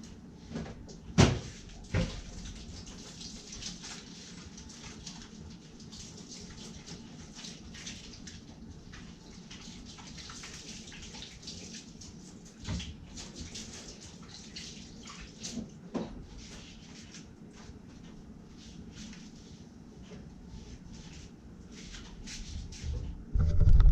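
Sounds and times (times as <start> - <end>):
tap water running and splashing: 1.7 - 17.1.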